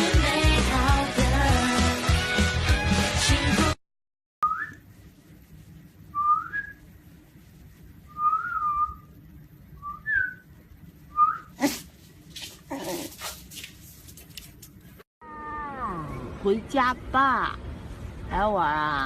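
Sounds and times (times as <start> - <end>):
puppy whining: 11.4 - 11.9, 12.6 - 13.4.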